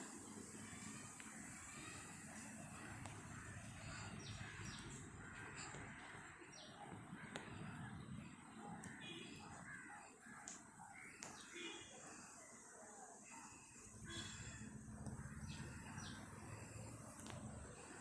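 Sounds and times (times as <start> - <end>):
bird calls and chirps: 0.1 - 12.6, 13.3 - 18.0.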